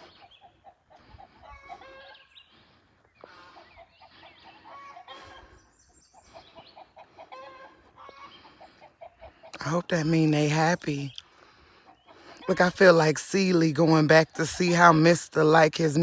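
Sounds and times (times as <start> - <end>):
hens clucking: 0.0 - 2.4, 3.3 - 5.5, 6.2 - 9.9.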